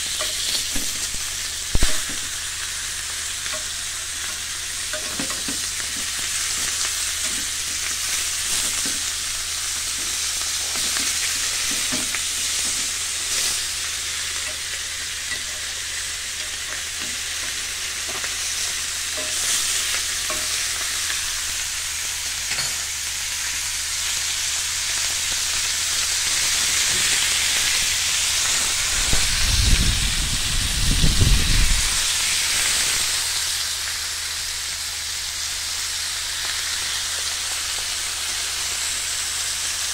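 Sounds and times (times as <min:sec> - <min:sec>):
meat sizzling on a grill pan: 0:00.0 - 0:39.9.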